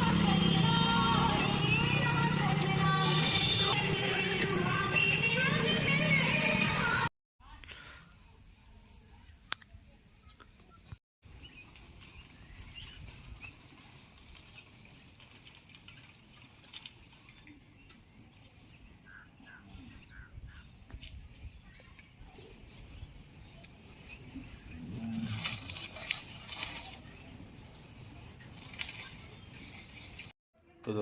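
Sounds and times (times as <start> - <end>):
crickets chirping: 7.4 - 31.0.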